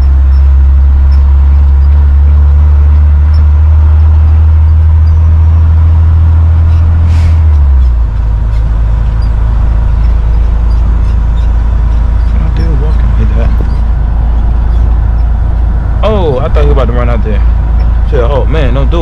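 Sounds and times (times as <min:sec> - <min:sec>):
truck engine droning: 0:00.0 - 0:19.0
short air hiss: 0:07.1 - 0:07.5.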